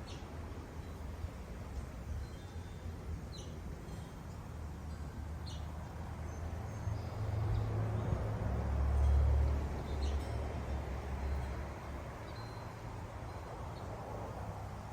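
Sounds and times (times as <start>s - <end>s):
small birds chirping: 2.4s - 3.6s.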